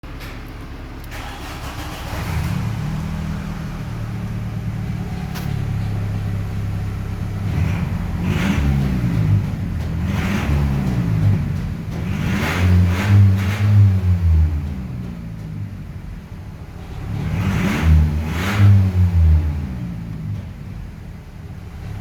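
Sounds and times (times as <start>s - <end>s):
car engine exhaust revving: 1.2s - 20.8s.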